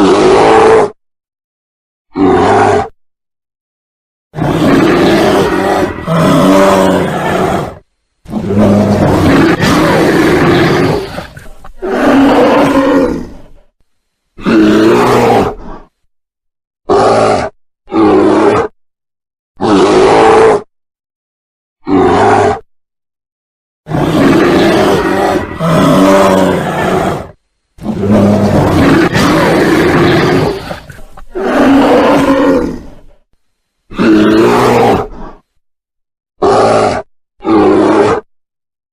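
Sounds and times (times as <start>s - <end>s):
bear roaring: 0.0s - 1.0s, 2.1s - 2.9s, 4.4s - 13.7s, 14.4s - 16.0s, 16.9s - 18.8s, 19.6s - 20.7s, 21.8s - 22.6s, 23.9s - 33.2s, 33.9s - 35.5s, 36.4s - 38.3s.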